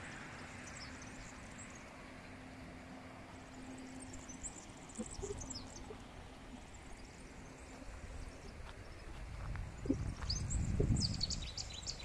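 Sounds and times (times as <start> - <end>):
small birds chirping: 0.2 - 2.4, 3.4 - 12.0
footsteps on stony ground: 8.5 - 10.5.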